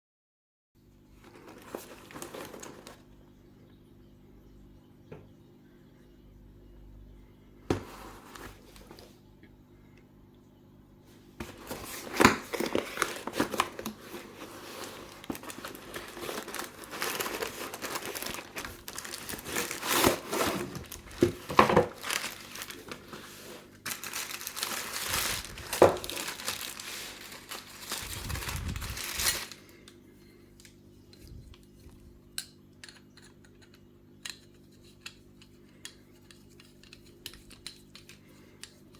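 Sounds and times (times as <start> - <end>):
packaging crinkling and tearing: 1.2 - 3.0, 11.4 - 29.9.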